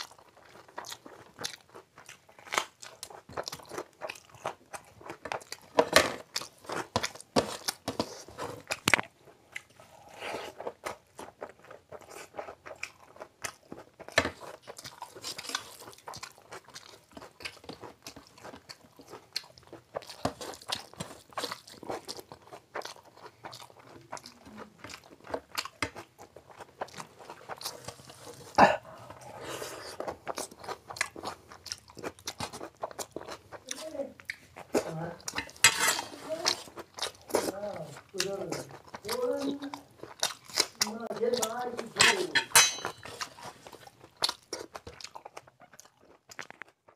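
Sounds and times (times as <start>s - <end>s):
chewing and crunching food: 0.0s - 46.9s
fingers mixing food on steel plate: 30.0s - 45.1s.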